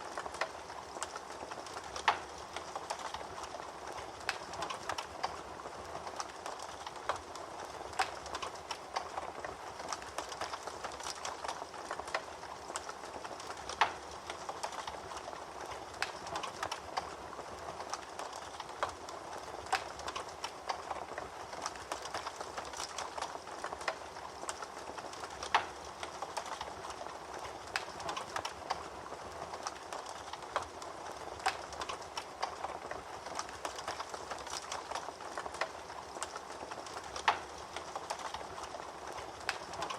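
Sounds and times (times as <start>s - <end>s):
fire crackling with pops: 0.0s - 39.9s.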